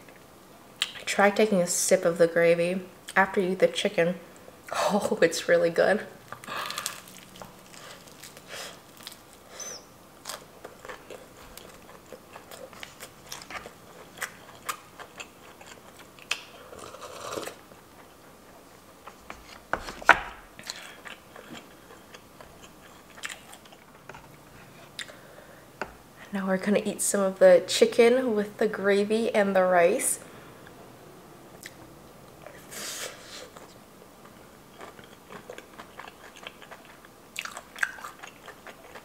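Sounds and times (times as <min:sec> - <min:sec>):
chewing crispy fried chicken: 0:06.3 - 0:09.5, 0:10.2 - 0:18.1, 0:20.6 - 0:25.2, 0:33.5 - 0:39.0.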